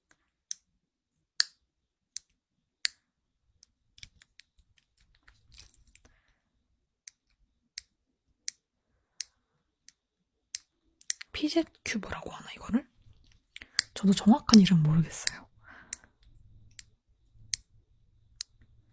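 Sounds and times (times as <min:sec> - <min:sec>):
fidget cube clicking: 0:09.9 - 0:11.3, 0:13.3 - 0:17.7.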